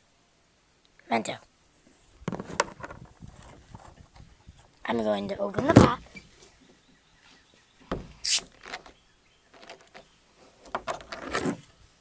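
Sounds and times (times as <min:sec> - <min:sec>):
carbonation hiss: 0:08.1 - 0:08.5.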